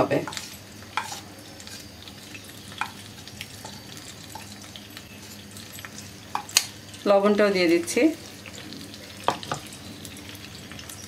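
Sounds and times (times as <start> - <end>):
paste frying in hot oil: 0.0 - 11.0
spatula scraping a plate: 0.3 - 1.9.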